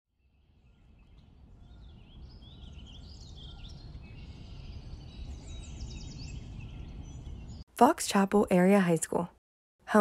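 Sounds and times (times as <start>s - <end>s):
songbirds chirping and singing: 0.2s - 7.6s.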